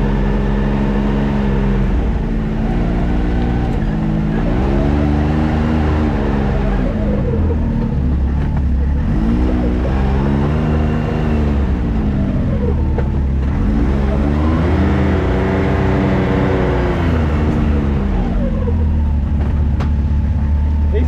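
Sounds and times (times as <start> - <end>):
engine revving under load: 0.0 - 21.0.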